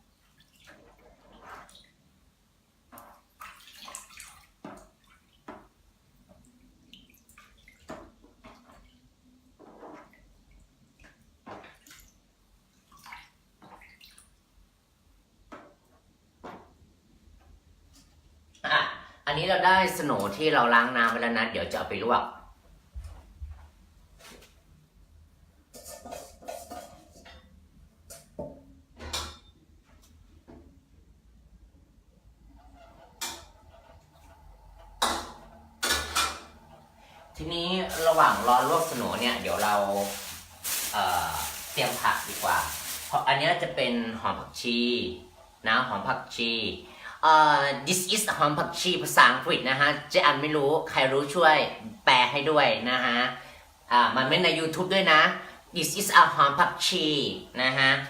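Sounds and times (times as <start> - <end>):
splashes and drips in water: 0.2 - 2.1, 2.9 - 9.0, 9.9 - 14.5, 37.9 - 43.3
pots and dishes clattering: 25.7 - 27.5.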